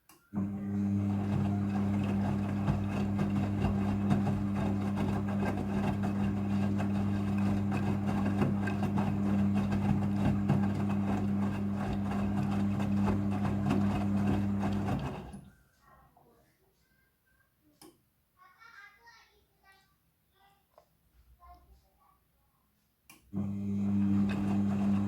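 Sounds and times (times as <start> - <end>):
washing machine electric hum: 0.3 - 15.6, 23.3 - 25.0
crackly water noise: 0.9 - 15.5.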